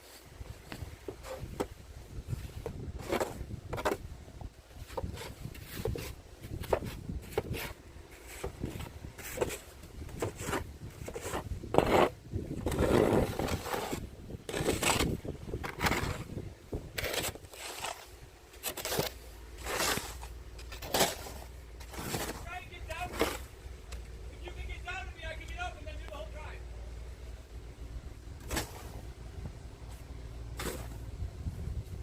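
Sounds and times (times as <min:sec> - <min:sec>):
snow shovel scraping snow: 0:00.0 - 0:01.7, 0:02.3 - 0:04.0, 0:04.8 - 0:23.6, 0:28.4 - 0:29.1, 0:29.8 - 0:31.1.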